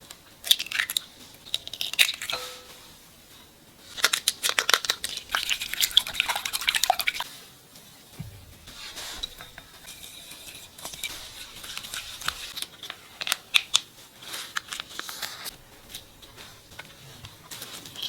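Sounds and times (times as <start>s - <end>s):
plastic packaging crinkling: 3.8s - 7.3s.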